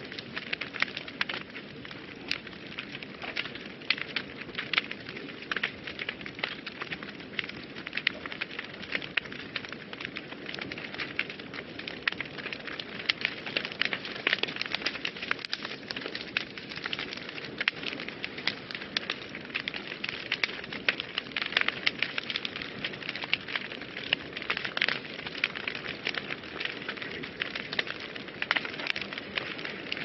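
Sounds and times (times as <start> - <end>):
fireplace fire crackling: 0.0 - 30.0.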